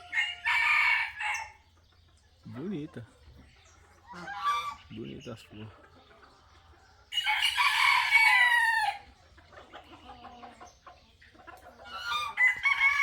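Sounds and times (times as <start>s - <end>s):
rooster crowing: 0.0s - 1.6s, 7.1s - 9.0s, 12.0s - 13.0s.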